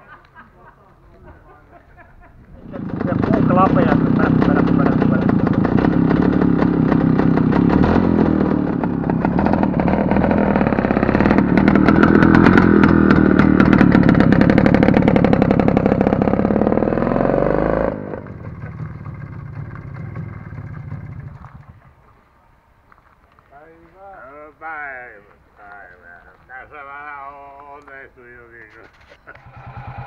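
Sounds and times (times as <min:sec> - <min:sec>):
engine idling: 0:02.6 - 0:17.0, 0:18.0 - 0:22.2, 0:29.3 - 0:30.0
motorcycle engine revving: 0:02.6 - 0:22.1, 0:29.3 - 0:30.0.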